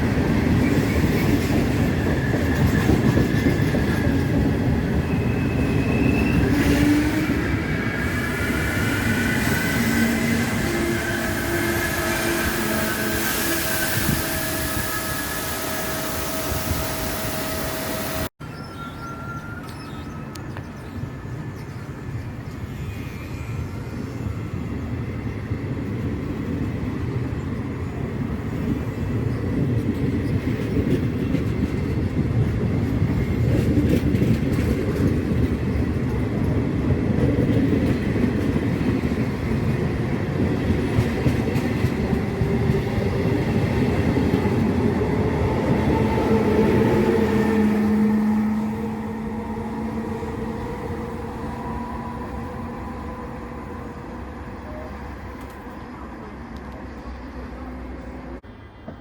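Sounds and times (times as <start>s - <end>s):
train wheels clattering on rails: 28.6s - 47.8s.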